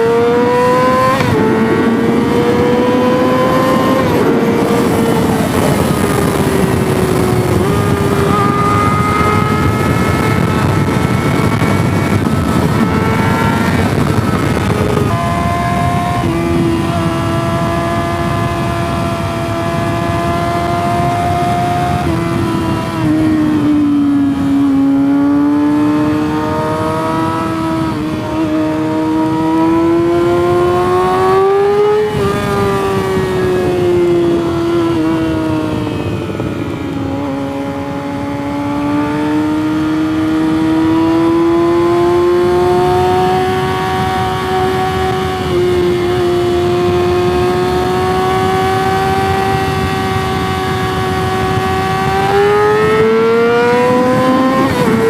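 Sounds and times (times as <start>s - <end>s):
motorcycle engine running hard: 0.0s - 55.0s
wind rushing: 0.0s - 55.0s.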